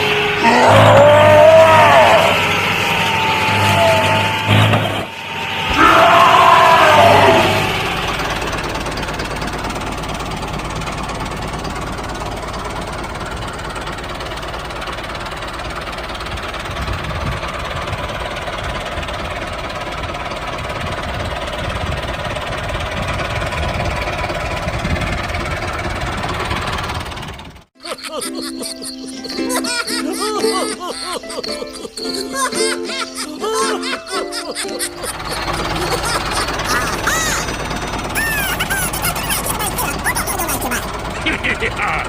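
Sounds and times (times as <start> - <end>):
loud wavering pitched sound: 0.0 - 9.4
small motor droning: 0.0 - 27.6, 28.2 - 42.0.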